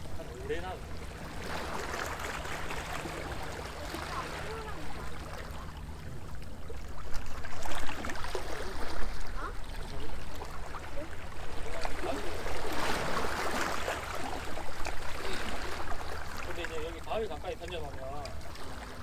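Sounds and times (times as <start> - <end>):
waves lapping against stone wall: 0.0 - 19.0.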